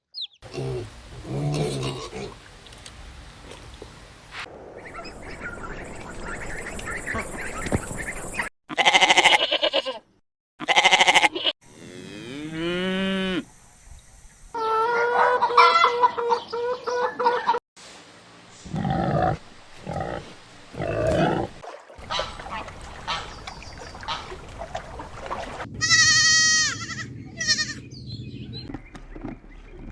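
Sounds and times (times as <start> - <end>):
sheep bleating: 8.7 - 11.5, 25.8 - 27.8.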